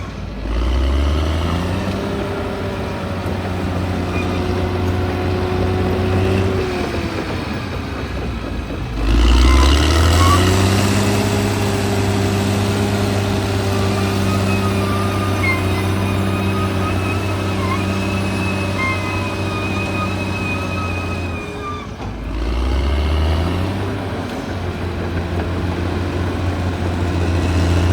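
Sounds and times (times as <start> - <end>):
bulldozer diesel engine running: 0.0 - 27.9
thin high squeal: 9.4 - 11.8, 12.4 - 22.2.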